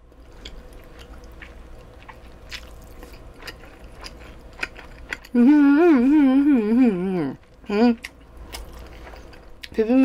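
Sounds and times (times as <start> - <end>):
close-mic chewing: 0.0 - 10.0
wavering throat hum: 5.3 - 8.0.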